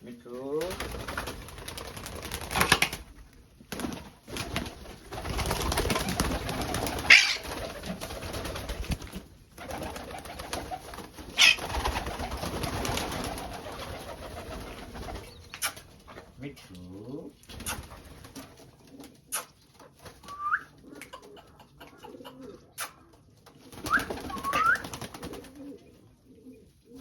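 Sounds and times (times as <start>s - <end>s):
pigeons cooing: 5.3s - 8.7s, 9.6s - 16.2s, 18.7s - 27.0s.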